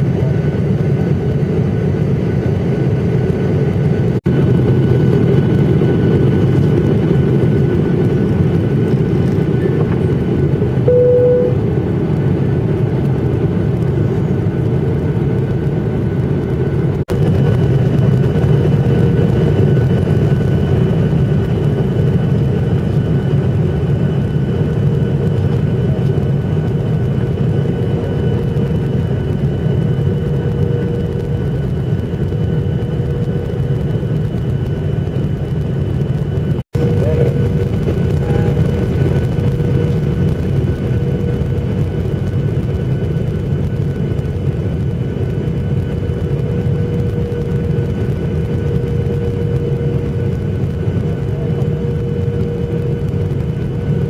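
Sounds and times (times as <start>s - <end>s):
jet engine and airflow rumble: 0.0s - 54.0s
faint high whine: 10.9s - 11.7s
short beep: 10.9s - 11.7s.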